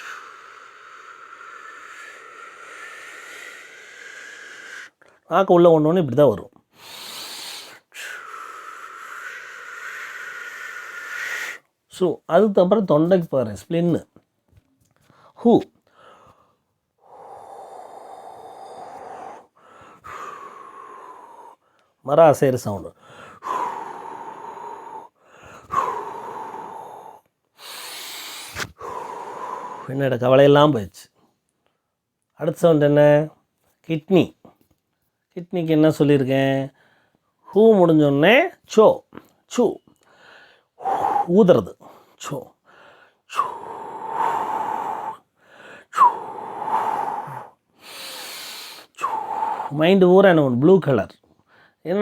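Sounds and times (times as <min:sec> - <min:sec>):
man blowing a long exhalation: 0:00.0 - 0:05.0, 0:06.7 - 0:11.7, 0:15.9 - 0:21.7, 0:23.0 - 0:29.9, 0:40.1 - 0:42.1, 0:42.7 - 0:49.8
man breathing out whispered hoo: 0:00.0 - 0:05.1, 0:06.8 - 0:11.7, 0:16.0 - 0:21.8, 0:23.0 - 0:30.0, 0:40.2 - 0:41.4, 0:42.7 - 0:49.8
hissy breath: 0:00.0 - 0:05.2, 0:06.7 - 0:11.7, 0:15.9 - 0:22.0, 0:23.0 - 0:30.0, 0:40.0 - 0:49.8.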